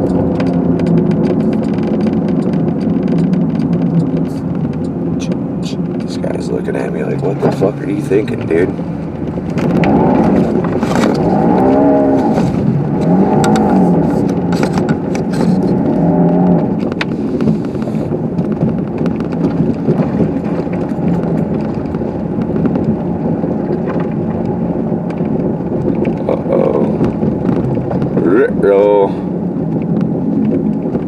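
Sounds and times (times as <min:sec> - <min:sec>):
car engine revving: 0:00.0 - 0:29.5
sharp knocks and scrapes: 0:09.6 - 0:15.8.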